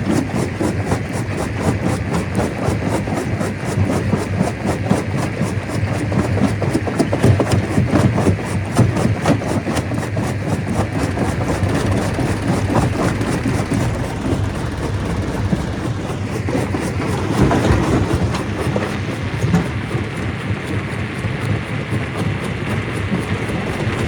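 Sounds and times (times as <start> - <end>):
stone crusher rumbling: 10.5 - 21.2, 22.7 - 24.0.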